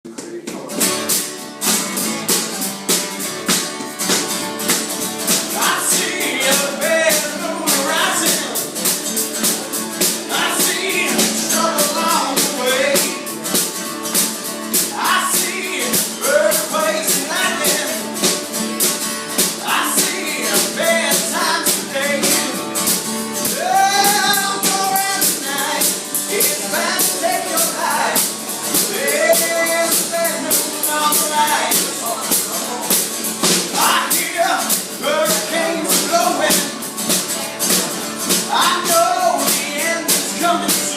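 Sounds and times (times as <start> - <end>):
acoustic guitar: 0.0 - 40.9
tambourine or shaker beat: 0.8 - 40.9
person singing: 5.4 - 13.6, 14.7 - 18.3, 19.4 - 22.7, 23.4 - 33.0, 33.7 - 40.9.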